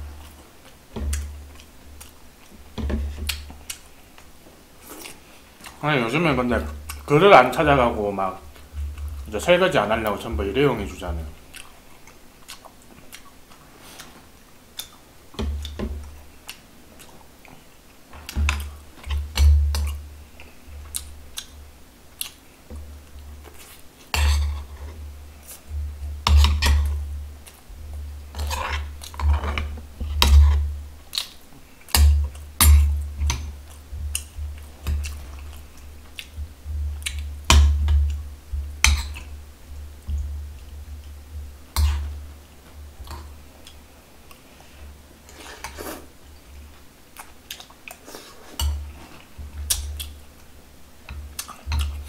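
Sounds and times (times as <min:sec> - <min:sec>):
chewing food: 0:11.3 - 0:24.1, 0:26.5 - 0:38.2, 0:45.3 - 0:52.0
metal spoon scraping bowls: 0:28.3 - 0:30.6.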